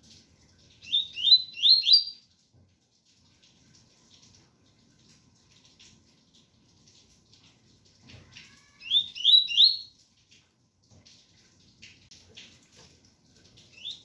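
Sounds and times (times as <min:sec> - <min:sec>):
faint rain patter: 0:00.0 - 0:14.0
bird whistling song: 0:00.8 - 0:02.2, 0:08.8 - 0:09.9, 0:13.7 - 0:14.0.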